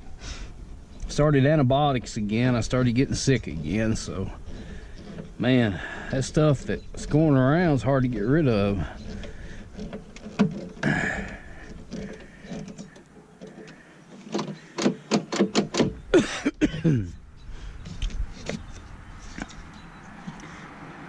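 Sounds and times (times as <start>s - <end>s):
handling truck door parts: 0.7s - 17.2s, 17.8s - 20.5s
knocks and rustles: 6.4s - 16.3s.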